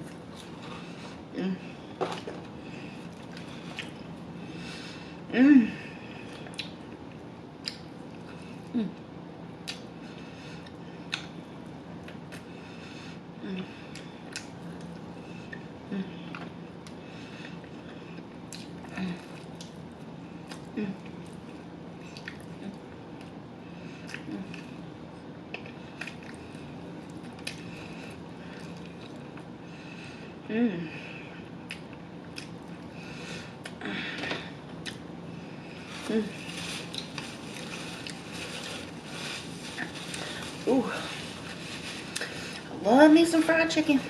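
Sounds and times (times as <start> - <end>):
person humming: 1.3 - 1.8, 5.3 - 5.8, 8.7 - 9.0, 30.5 - 31.0
crunching and chewing fried chicken: 2.2 - 4.3, 16.3 - 29.6, 34.7 - 42.7.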